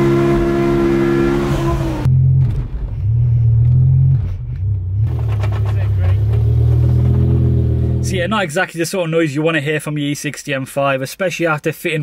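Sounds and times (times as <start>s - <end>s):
car engine running: 0.0s - 8.4s.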